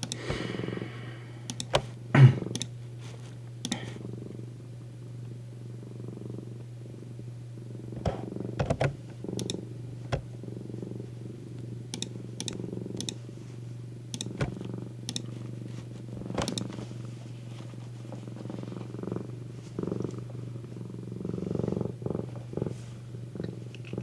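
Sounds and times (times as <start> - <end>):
sharp clicks: 0.0 - 0.3, 1.5 - 1.9, 2.5 - 2.8, 3.6 - 3.9, 8.6 - 10.3, 11.9 - 13.2, 14.2 - 15.3, 16.4 - 16.7
cat purring: 2.4 - 13.5, 14.2 - 24.0.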